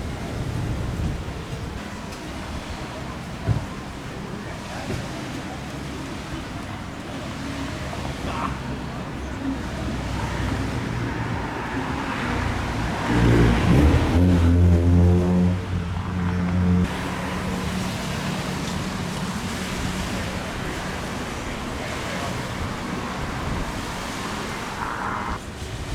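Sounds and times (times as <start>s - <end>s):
vehicle engine close by: 0.0s - 25.5s
street traffic: 0.0s - 25.9s.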